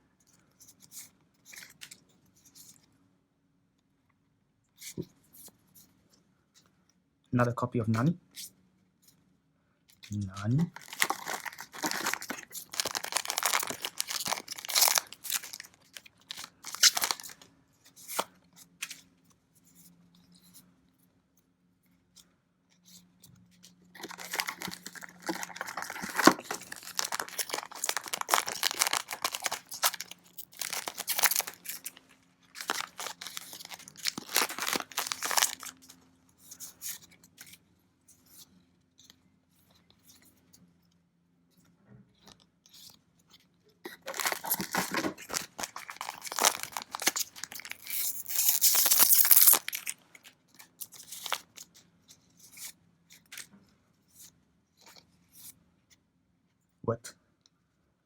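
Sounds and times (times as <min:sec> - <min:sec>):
foil wrappers torn and crinkled: 0:10.6 - 0:18.3, 0:24.0 - 0:36.0, 0:43.9 - 0:51.7.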